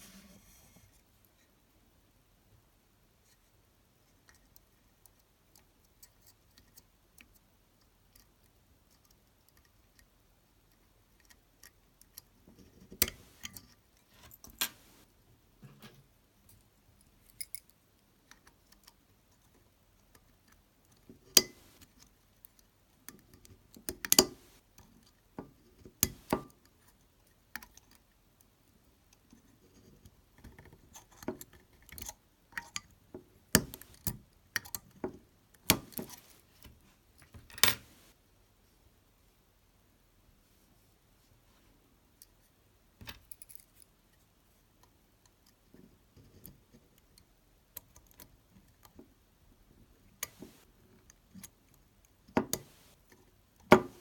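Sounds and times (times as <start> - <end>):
tools clicking and tapping: 11.2 - 16.0, 21.2 - 24.6, 25.4 - 26.7, 30.4 - 38.1, 50.2 - 50.7, 52.3 - 53.0, 53.6 - 54.0.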